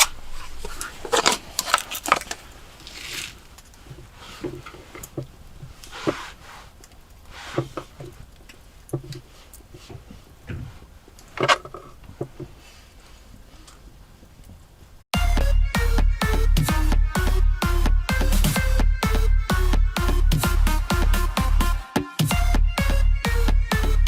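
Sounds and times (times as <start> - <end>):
objects being handled: 0.0 - 13.9.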